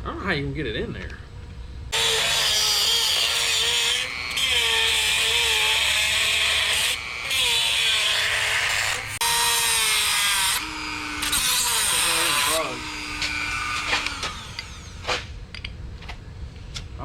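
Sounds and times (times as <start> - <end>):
rotary tool grinding steel: 1.9 - 15.3.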